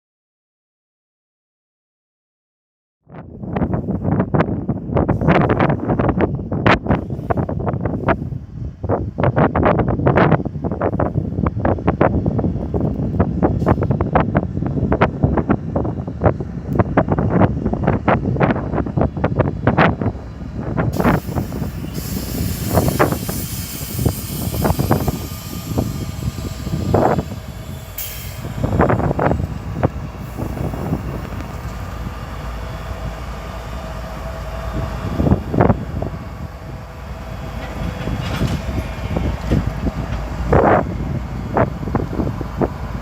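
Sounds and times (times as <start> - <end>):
train rumbling past: 3.4 - 43.0
faint squeal: 21.0 - 36.6
wheels clanking and knocking: 37.5 - 40.3.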